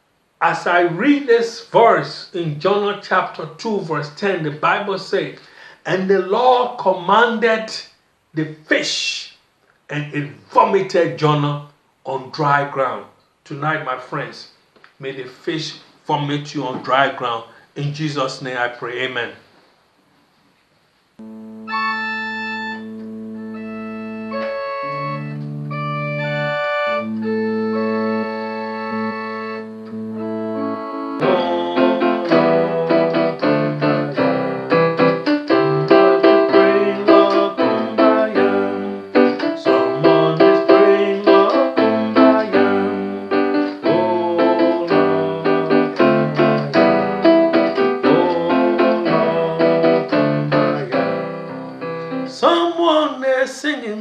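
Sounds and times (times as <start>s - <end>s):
electronic keyboard music: 21.2s - 52.4s.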